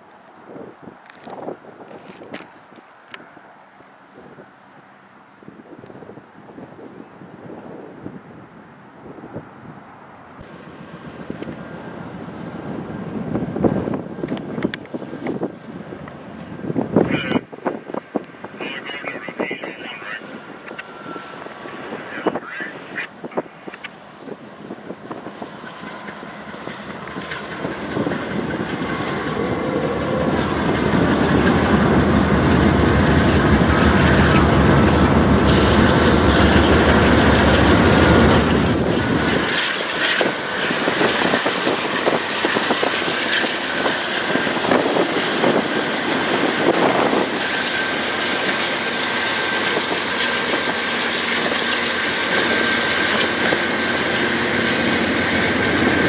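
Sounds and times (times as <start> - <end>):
diesel locomotive engine drone: 0.0 - 56.0
train wheels clattering over rail joints: 25.1 - 56.0.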